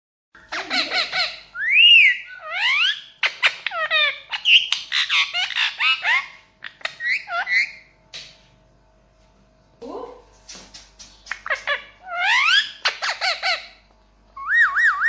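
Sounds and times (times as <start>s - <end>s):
parrot whistles and squawks: 0.5s - 7.9s, 11.3s - 13.8s, 14.4s - 15.0s.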